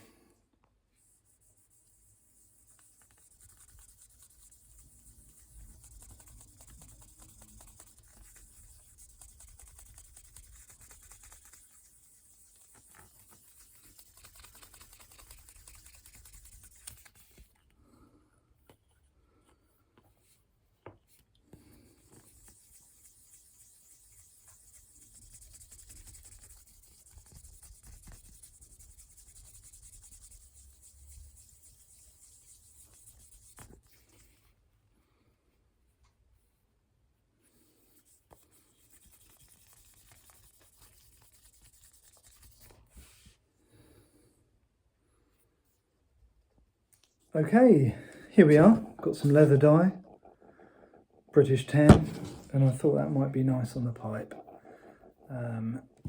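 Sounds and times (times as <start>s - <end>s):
abrasive pad rubbing: 1.0s - 17.6s, 21.6s - 34.4s, 37.9s - 43.3s.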